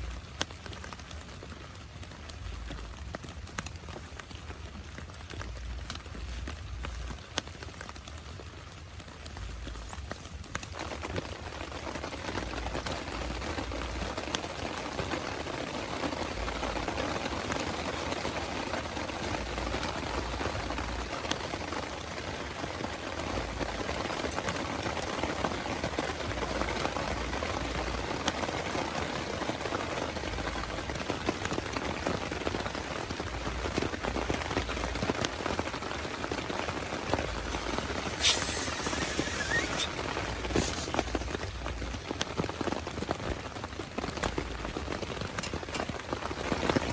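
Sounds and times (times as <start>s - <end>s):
heavy rain falling: 0.0s - 46.9s
brief high hiss: 37.5s - 41.6s.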